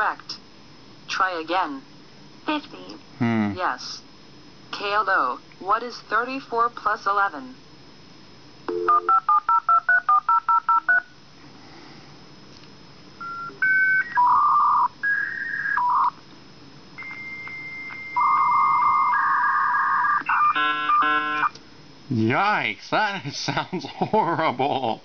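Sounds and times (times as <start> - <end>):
touch-tone dialing beeps: 8.7 - 11.0, 13.2 - 16.1, 20.2 - 21.5
modem handshake tones: 17.0 - 19.2
buzzing static: 18.2 - 22.4.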